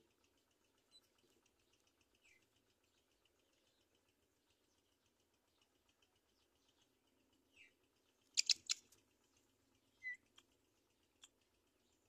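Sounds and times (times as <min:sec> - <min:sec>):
faint high twittering: 0:00.0 - 0:12.0
falling bird chirp: 0:08.3 - 0:08.9
sharp high bird calls: 0:08.3 - 0:08.9.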